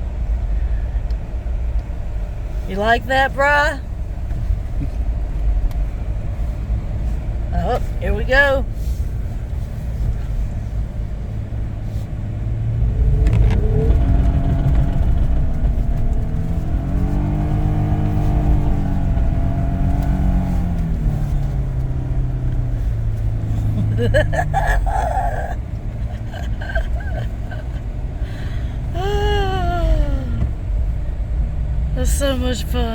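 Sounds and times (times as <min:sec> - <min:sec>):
vehicle motor speeding up: 0:12.6 - 0:24.6.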